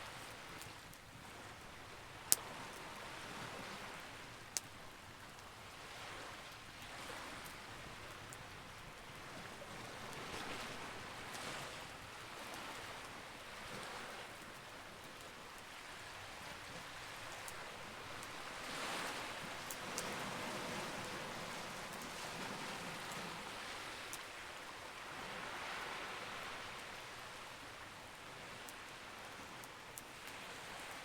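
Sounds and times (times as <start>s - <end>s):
campfire crackling and popping: 0.0s - 5.8s, 14.4s - 22.2s.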